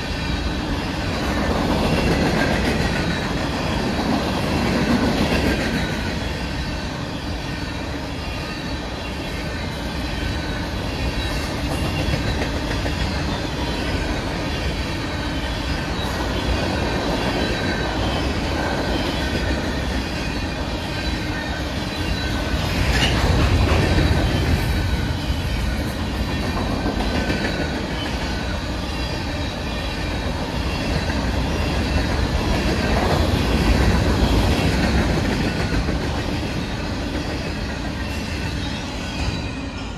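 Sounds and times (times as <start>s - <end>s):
train wheels rumbling: 0.0s - 39.9s
wheels clickety-clack: 1.0s - 6.2s, 11.1s - 14.8s, 22.0s - 28.5s, 30.2s - 38.6s.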